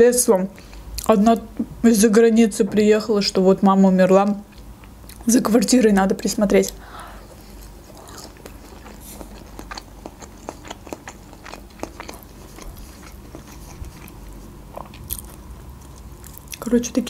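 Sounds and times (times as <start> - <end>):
chewing with crunches: 6.6 - 16.7.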